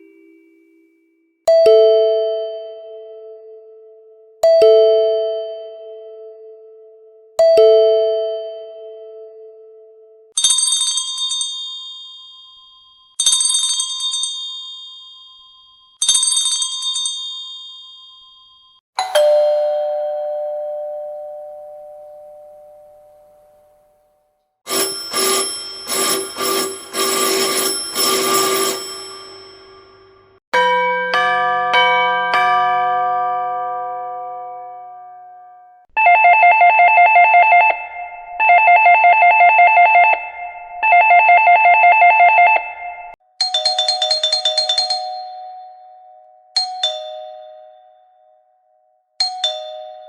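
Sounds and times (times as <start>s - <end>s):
ding-dong doorbell chime: 0.0s - 3.6s, 10.4s - 23.9s, 24.7s - 30.0s, 30.6s - 35.8s, 43.4s - 48.3s, 49.2s - 50.0s
high electronic chime: 24.7s - 29.5s.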